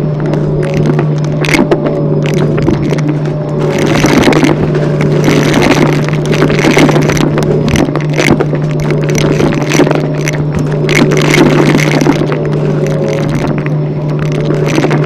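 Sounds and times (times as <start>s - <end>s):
sharp clicks and scraping: 0.0s - 15.0s.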